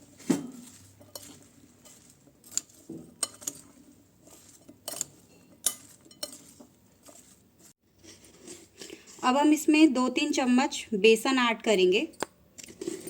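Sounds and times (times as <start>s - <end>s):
spoon clinking and scraping bowl: 0.0s - 9.4s, 12.1s - 13.0s.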